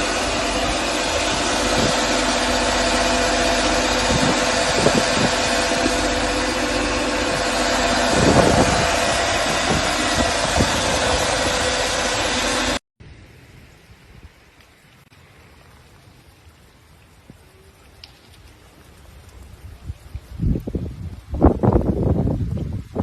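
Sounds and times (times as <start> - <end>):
motor humming: 0.0 - 12.8
continuous hiss: 13.0 - 23.0.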